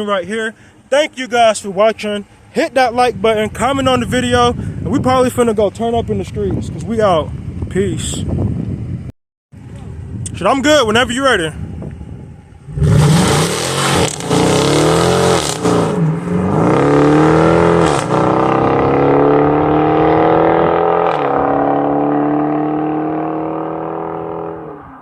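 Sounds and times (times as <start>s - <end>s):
car engine accelerating with upshifts: 12.6s - 25.0s.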